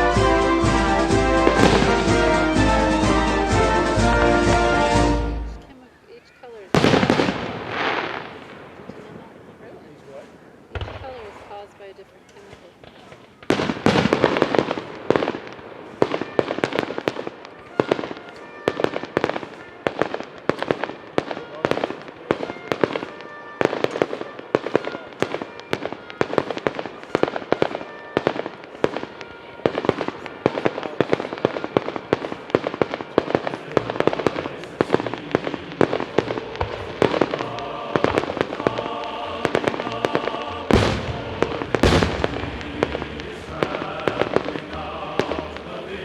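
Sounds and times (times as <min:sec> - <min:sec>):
fireworks crackling pops: 0:00.0 - 0:05.8, 0:06.4 - 0:46.0
background music: 0:00.0 - 0:05.9, 0:32.5 - 0:46.0.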